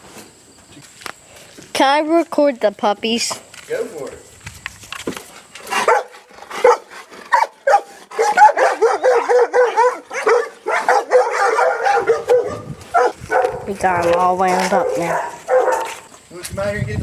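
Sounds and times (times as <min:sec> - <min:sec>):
puppies yipping and barking: 0:05.7 - 0:14.0, 0:14.6 - 0:16.1.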